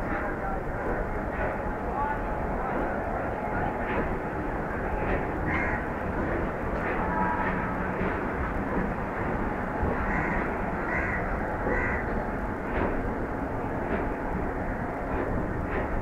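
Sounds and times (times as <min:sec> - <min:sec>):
train wheels rumbling on track: 0:00.0 - 0:16.0
crow cawing: 0:05.5 - 0:05.8, 0:10.1 - 0:12.0.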